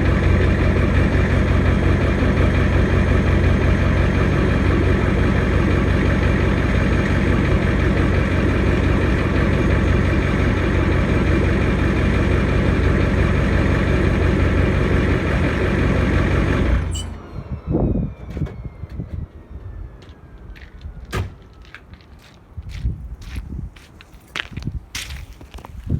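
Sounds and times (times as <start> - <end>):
diesel engine running: 0.0 - 22.0
high whine falling in pitch: 16.9 - 21.0.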